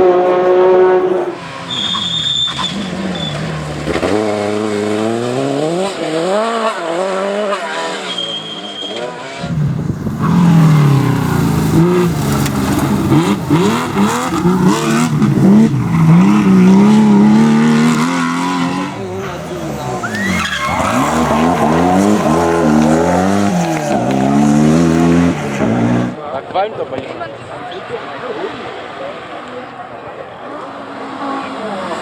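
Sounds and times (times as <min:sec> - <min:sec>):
rally car engines revving: 0:00.0 - 0:32.0
short high whistle: 0:08.1 - 0:09.1.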